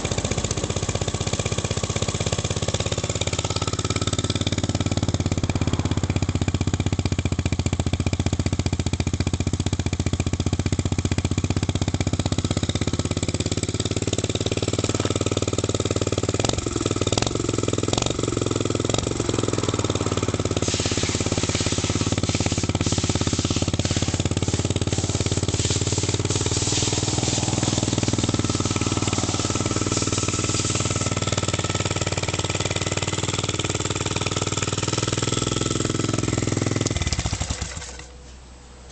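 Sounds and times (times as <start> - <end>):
motorbike engine idling: 0.0 - 38.9
harsh hiss: 20.0 - 31.9.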